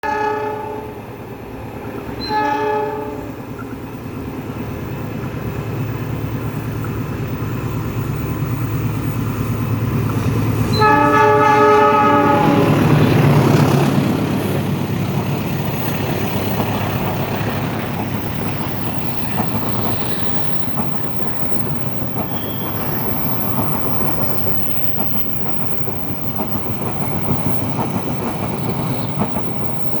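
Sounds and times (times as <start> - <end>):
locomotive horn blasts: 0.0 - 1.0, 2.2 - 3.3, 10.7 - 13.0
train rumbling on rails: 0.0 - 30.0.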